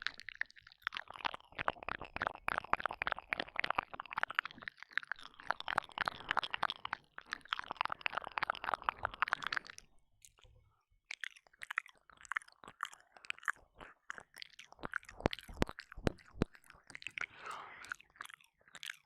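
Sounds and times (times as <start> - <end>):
wet mouth licking sounds: 0.0 - 10.5, 11.2 - 19.0
tongue clicks: 0.0 - 19.0
lip smacks: 11.2 - 19.0
slurping: 12.7 - 19.0.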